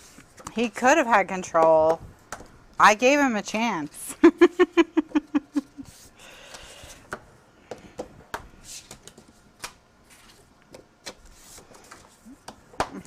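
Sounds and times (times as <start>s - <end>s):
person laughing: 4.1s - 6.0s
paper rustling: 8.7s - 12.3s.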